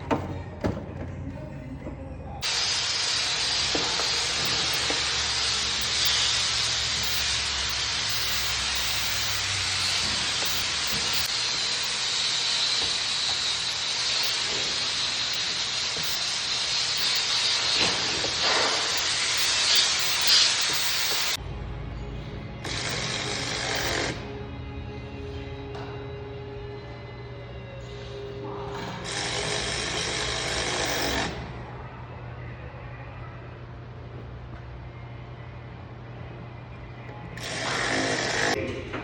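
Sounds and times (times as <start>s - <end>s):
air tool hissing: 2.4s - 21.4s, 22.6s - 24.3s, 28.8s - 31.4s, 37.4s - 38.6s.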